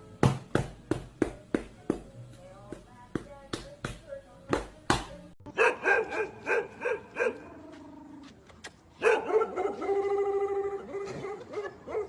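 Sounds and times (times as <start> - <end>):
dog barking: 5.5 - 7.5, 9.0 - 10.1, 10.8 - 12.0.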